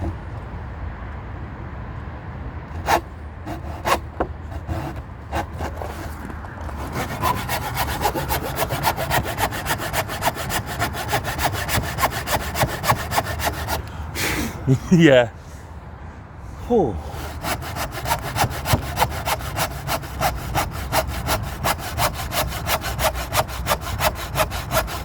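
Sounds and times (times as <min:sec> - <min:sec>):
saw cutting through wood: 0:02.7 - 0:13.9, 0:17.1 - 0:25.0.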